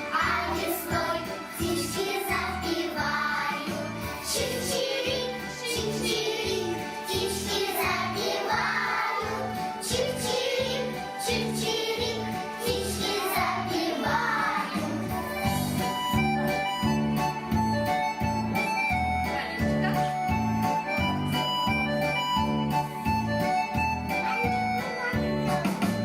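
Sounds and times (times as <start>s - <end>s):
children singing: 0.0s - 15.8s
backing track with steady beat: 0.0s - 26.0s.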